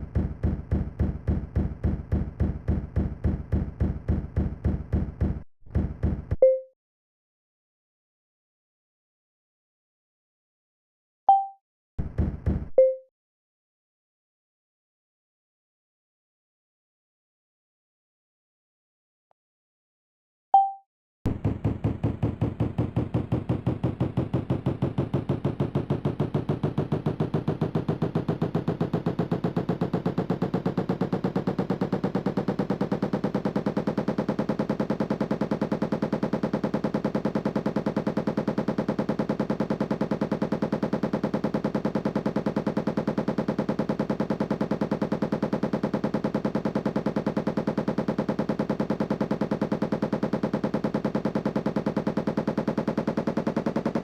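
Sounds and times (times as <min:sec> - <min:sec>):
rapid regular pulsing: 0:21.4 - 0:54.0.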